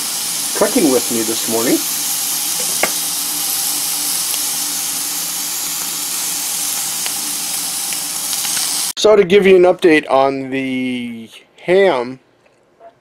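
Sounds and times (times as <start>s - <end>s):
ham sizzling in a frying pan: 0.0s - 9.0s.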